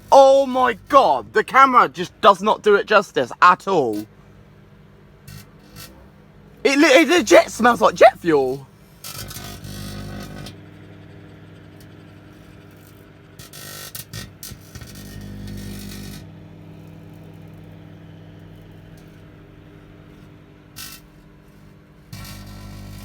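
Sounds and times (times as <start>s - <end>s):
microwave oven humming: 8.8s - 20.8s, 21.7s - 23.0s.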